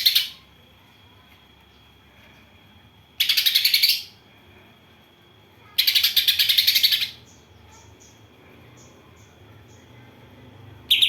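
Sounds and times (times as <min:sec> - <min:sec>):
songbird chattering: 0:03.2 - 0:04.2, 0:05.7 - 0:08.2
faint high chirps: 0:05.6 - 0:11.0.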